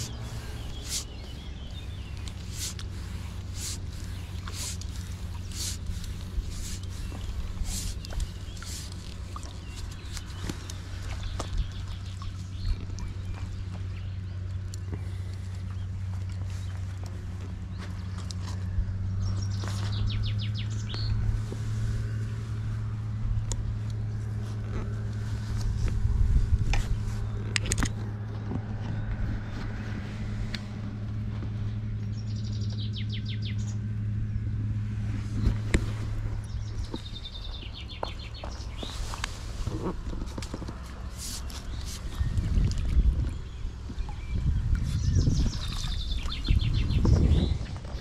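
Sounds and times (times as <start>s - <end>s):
songbird trilling: 0.0s - 14.1s, 43.3s - 47.8s
steady low hum: 0.0s - 48.0s.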